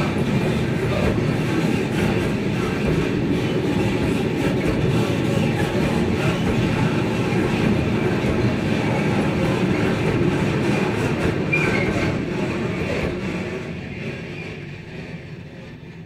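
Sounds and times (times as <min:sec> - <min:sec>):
train wheels rumbling on rails: 0:00.0 - 0:16.0
high-pitched wheel squeal: 0:11.4 - 0:12.2.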